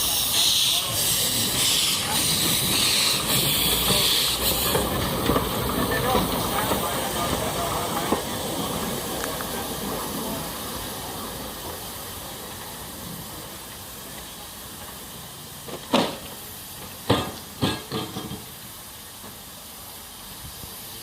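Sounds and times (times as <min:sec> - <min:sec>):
steam locomotive hissing: 0:00.0 - 0:21.0.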